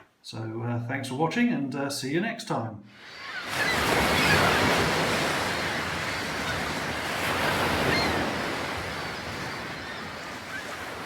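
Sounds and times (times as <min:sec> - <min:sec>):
sea waves breaking on shore: 0:03.0 - 0:11.0.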